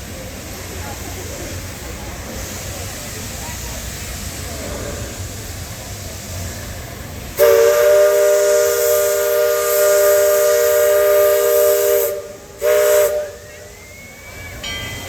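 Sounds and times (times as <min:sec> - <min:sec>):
ship horn long blast: 0:07.4 - 0:13.8.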